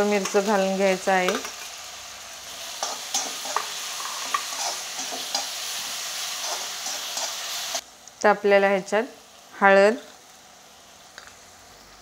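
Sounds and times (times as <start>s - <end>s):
chillies sizzling in hot oil: 0.0s - 12.0s
spatula scraping and tapping pan: 2.8s - 5.6s.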